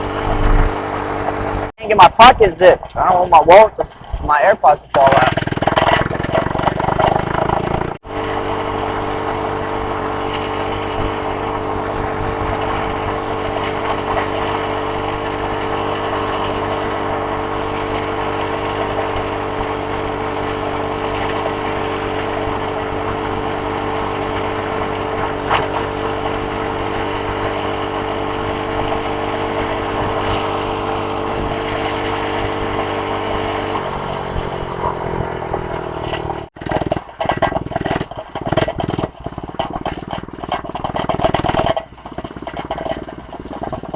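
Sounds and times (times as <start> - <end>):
small engine running steadily: 0.0 - 43.9.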